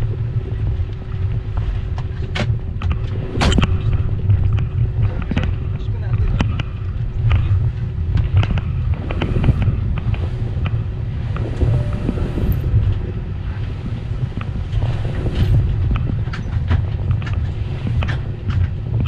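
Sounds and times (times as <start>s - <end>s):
aircraft engines rumbling: 0.0s - 19.0s
faint hum: 8.6s - 16.5s.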